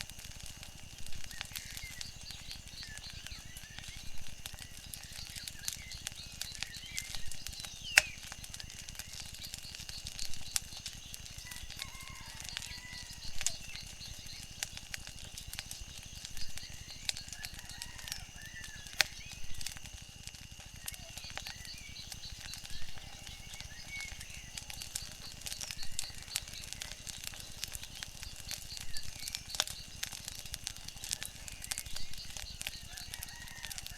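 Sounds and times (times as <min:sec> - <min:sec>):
wood fire crackling and popping: 0:00.0 - 0:33.9.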